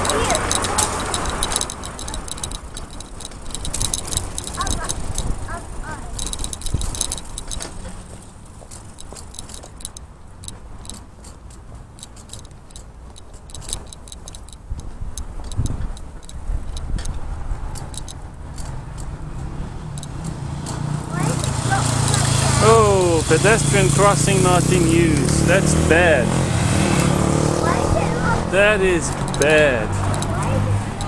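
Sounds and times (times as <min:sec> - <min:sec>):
bicycle metallic clicks and rattles: 0:00.0 - 0:24.0, 0:28.6 - 0:31.0
wind: 0:00.0 - 0:31.0.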